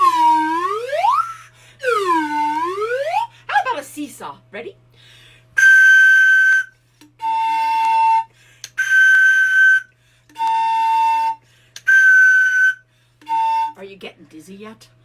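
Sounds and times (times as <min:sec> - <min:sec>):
whistle blown in held notes: 0:00.0 - 0:03.2, 0:05.6 - 0:13.8.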